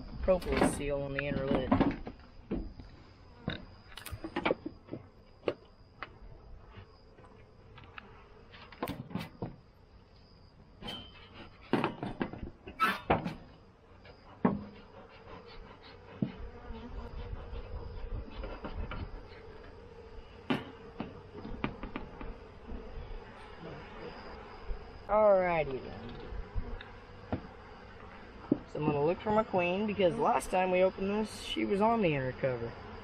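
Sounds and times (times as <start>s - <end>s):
honeybees buzzing: 0.0s - 12.7s, 13.3s - 33.0s
metal tool scraping wood: 10.8s - 11.9s.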